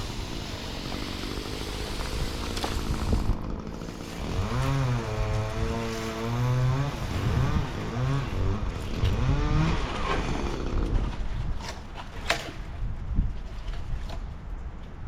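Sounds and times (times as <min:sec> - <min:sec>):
chainsaw engine revving: 0:00.0 - 0:11.1.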